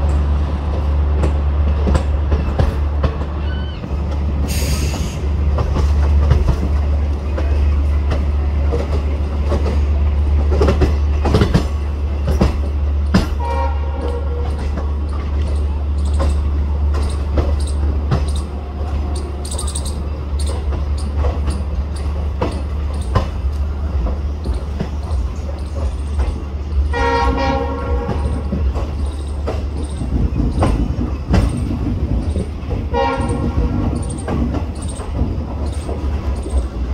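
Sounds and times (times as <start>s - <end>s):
train rumbling on track: 0.0s - 36.9s
wheels clacking over rail joints: 0.0s - 36.9s
train horn: 13.4s - 14.7s, 26.9s - 28.4s, 32.9s - 33.8s.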